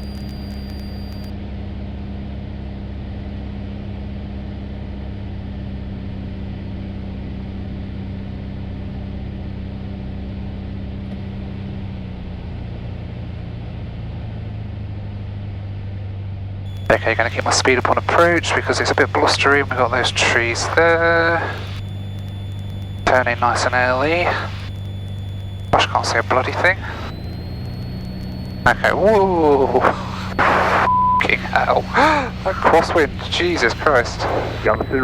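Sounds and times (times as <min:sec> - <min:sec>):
light aircraft engine droning: 0:16.7 - 0:35.0.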